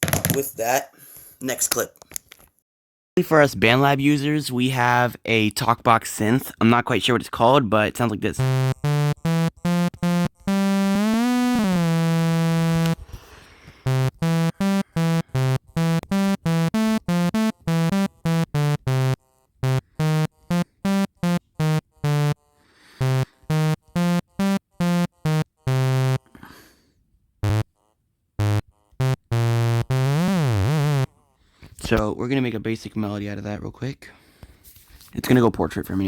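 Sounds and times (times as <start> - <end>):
talkbox synth choppy notes: 8.3 - 13.0, 13.8 - 26.3, 27.4 - 27.7, 28.4 - 31.2.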